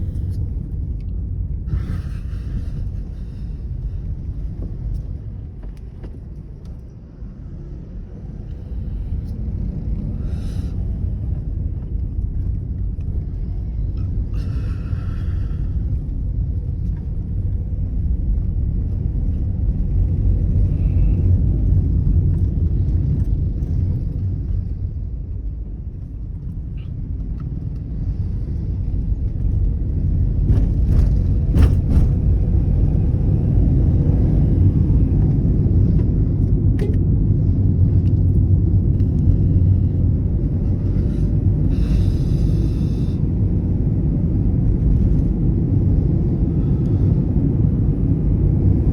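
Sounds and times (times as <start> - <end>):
car engine and road noise: 0.0 - 48.9.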